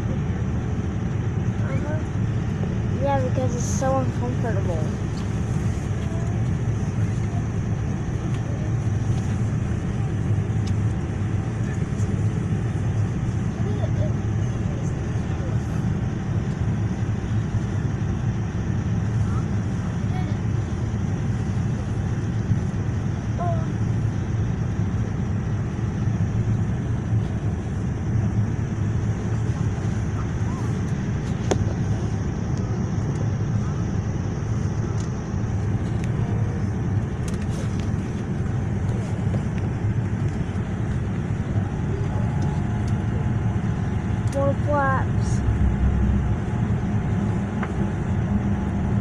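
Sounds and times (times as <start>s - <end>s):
airliner cabin rumble: 0.0s - 49.0s.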